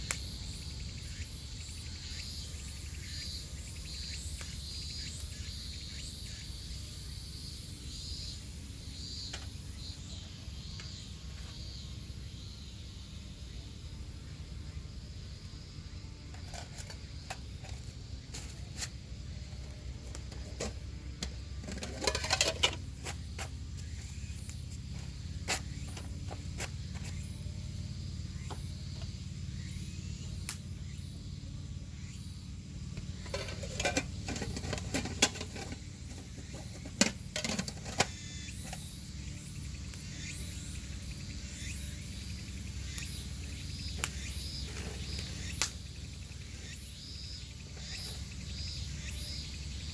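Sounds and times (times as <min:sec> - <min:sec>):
campfire crackling: 0:45.1 - 0:46.0.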